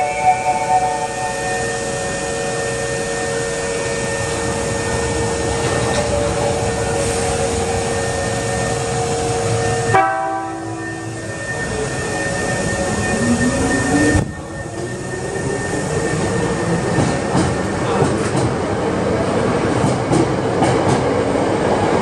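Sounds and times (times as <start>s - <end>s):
train horn blast: 0.0s - 4.6s, 9.0s - 11.2s
electric train humming: 0.0s - 22.0s.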